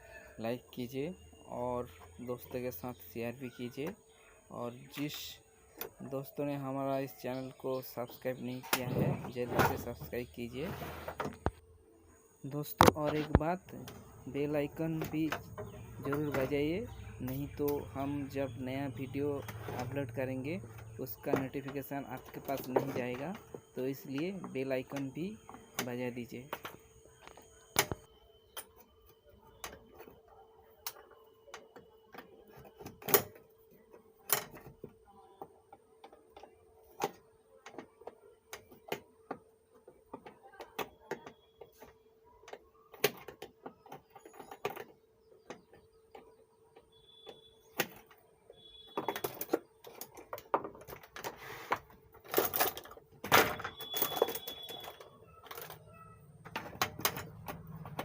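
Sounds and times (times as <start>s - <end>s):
hands and tools clicking and knocking: 12.5s - 58.0s.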